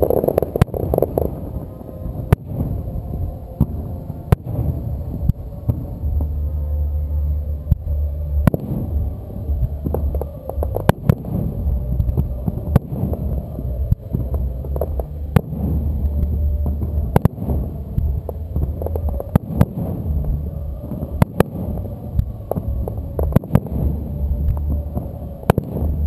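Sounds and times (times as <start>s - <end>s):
firework shells bursting: 0.0s - 1.6s
low pulsing rumble: 0.0s - 26.0s.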